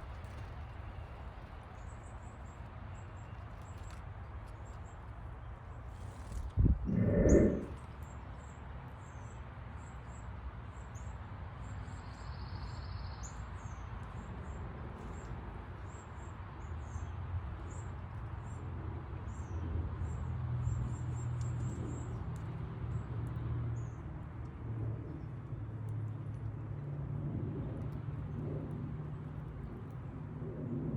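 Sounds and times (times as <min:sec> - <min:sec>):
low steady rumble: 0:06.6 - 0:07.8
small birds chirping: 0:06.8 - 0:07.8.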